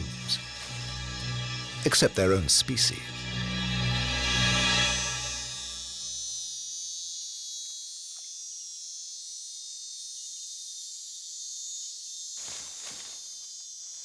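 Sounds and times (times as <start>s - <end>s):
insect chorus buzzing: 0.0s - 1.9s, 5.6s - 14.0s.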